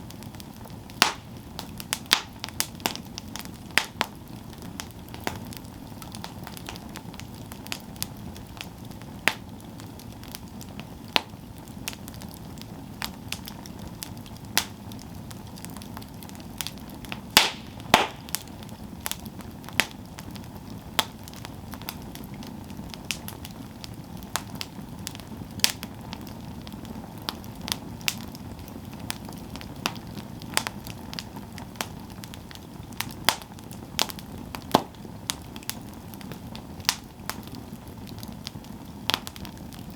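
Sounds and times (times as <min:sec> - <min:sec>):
campfire crackling: 0:00.0 - 0:39.9
flames rumbling hiss: 0:00.0 - 0:39.9
sharp pops and snaps: 0:01.0 - 0:03.0, 0:17.2 - 0:18.5, 0:33.0 - 0:35.7.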